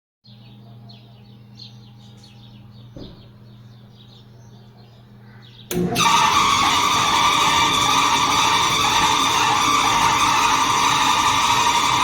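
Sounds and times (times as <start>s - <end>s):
bird chirps: 0.3s - 5.8s
dryer squealing scrape: 5.7s - 12.0s.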